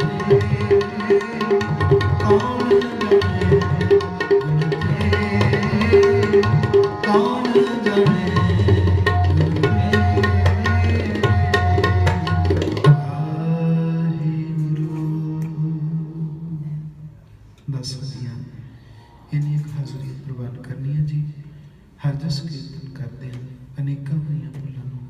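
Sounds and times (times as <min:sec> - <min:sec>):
tabla playing rhythm: 0:00.0 - 0:13.3.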